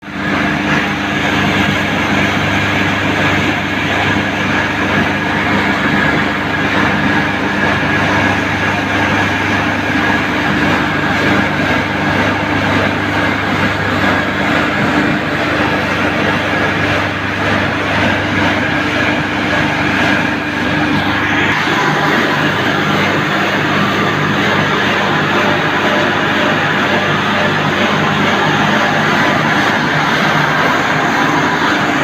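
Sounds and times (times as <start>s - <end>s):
hammer mill running: 0.0s - 32.0s.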